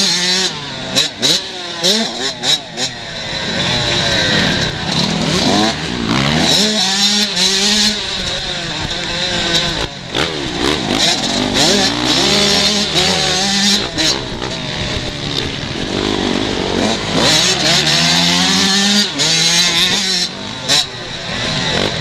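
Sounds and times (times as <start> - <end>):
motocross bikes revving: 0.0 - 22.0.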